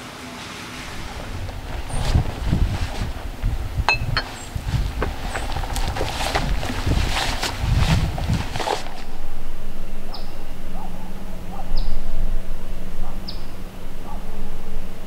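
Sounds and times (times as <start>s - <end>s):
steady low hum: 0.7s - 15.0s
bird chirping: 9.1s - 15.0s.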